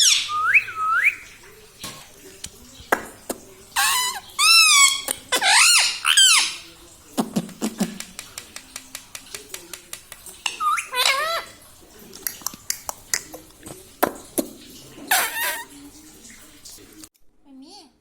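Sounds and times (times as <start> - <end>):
parrot squeaky calls: 0.0 - 1.3, 3.8 - 6.7, 10.4 - 11.6, 15.1 - 15.7.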